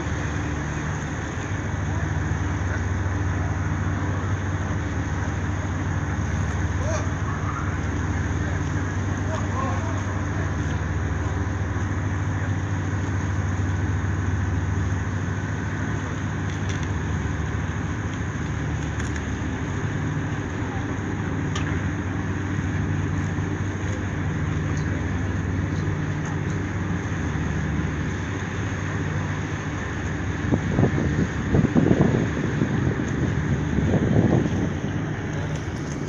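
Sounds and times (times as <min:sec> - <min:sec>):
low engine drone: 0:00.0 - 0:36.0.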